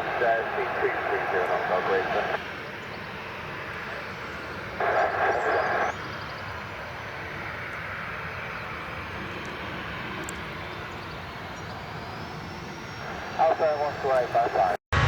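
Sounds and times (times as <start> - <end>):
radio chatter from scanner: 0.0 - 2.4, 4.8 - 5.9, 13.4 - 14.8
jet engine noise: 0.0 - 15.0.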